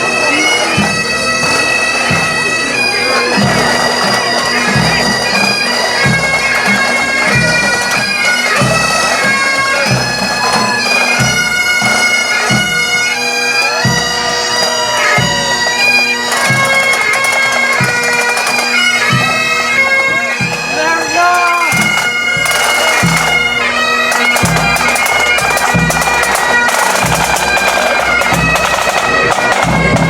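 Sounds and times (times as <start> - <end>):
bagpipes playing: 0.0 - 30.0
bass drum marching beat: 16.3 - 23.4, 24.1 - 30.0.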